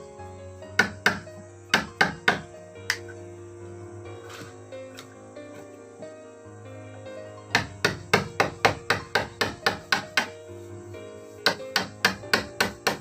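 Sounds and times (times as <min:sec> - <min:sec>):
background music: 0:00.0 - 0:13.0
hammer blows: 0:11.4 - 0:13.0.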